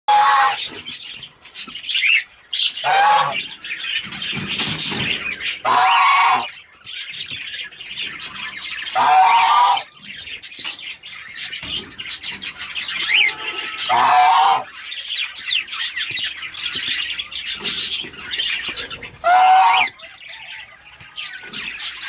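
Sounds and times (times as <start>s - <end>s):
budgerigar chattering and warbling: 2.0s - 7.2s, 8.2s - 10.1s, 11.5s - 22.0s.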